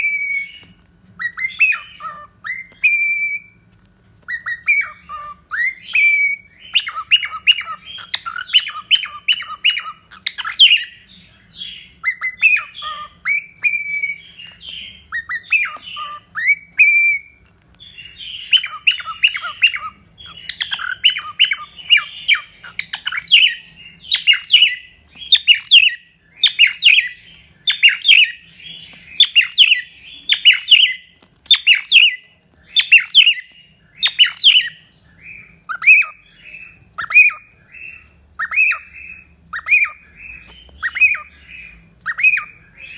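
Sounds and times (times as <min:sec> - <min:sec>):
cockatiel whistling and chattering: 0:00.0 - 0:03.6, 0:04.2 - 0:42.9.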